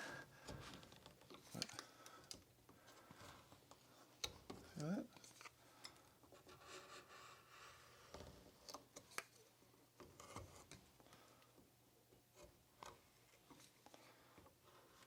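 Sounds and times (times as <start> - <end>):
carving tool scraping wood: 6.4 - 7.9.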